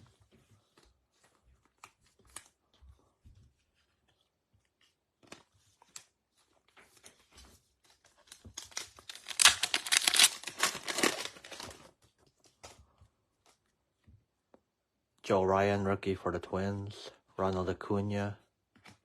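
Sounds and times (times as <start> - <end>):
wrapper tearing and crinkling: 8.2 - 11.9.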